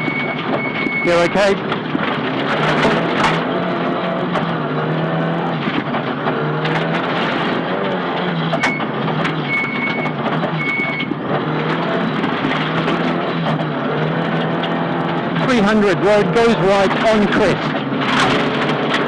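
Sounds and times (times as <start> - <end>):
short high beeps: 0.0 - 1.5, 9.5 - 11.1
rally car engine running: 0.0 - 19.0.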